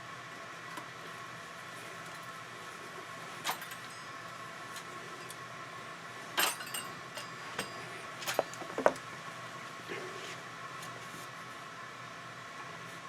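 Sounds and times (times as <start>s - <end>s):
metal tools clinking: 6.4s - 9.0s.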